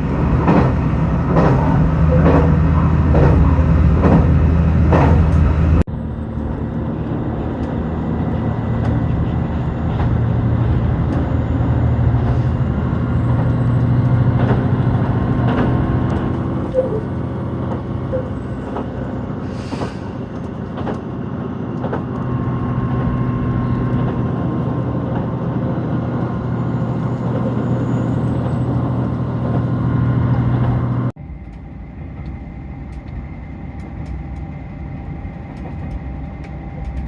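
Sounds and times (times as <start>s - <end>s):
diesel train engine drone: 0.0s - 37.0s
wheels clicking over rail joints: 6.3s - 26.6s.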